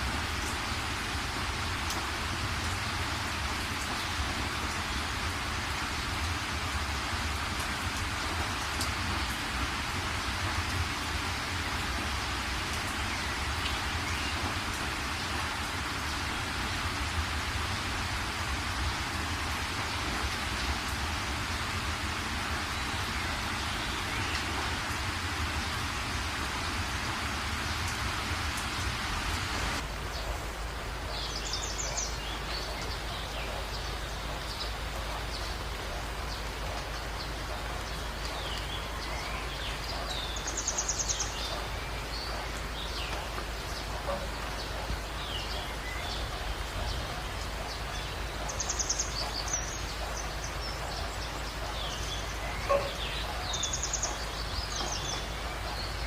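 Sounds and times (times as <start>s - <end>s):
light rain: 0.0s - 56.0s
steady rain: 0.0s - 56.0s
birds chirping: 18.4s - 30.4s, 31.1s - 56.0s.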